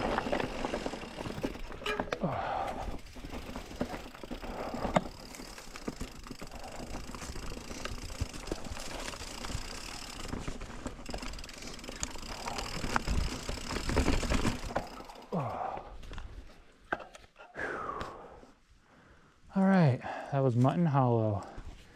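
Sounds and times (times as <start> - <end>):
bike tyres on dirt: 0.0 - 16.9
bike clicks and rattles: 0.0 - 17.3.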